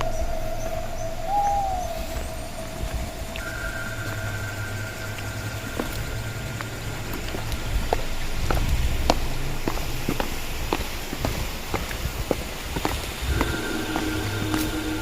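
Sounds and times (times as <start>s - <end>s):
high whistle-like tones: 0.0s - 8.2s, 13.3s - 15.0s
low rumble: 0.0s - 15.0s
footsteps crunching on forest path: 2.0s - 15.0s.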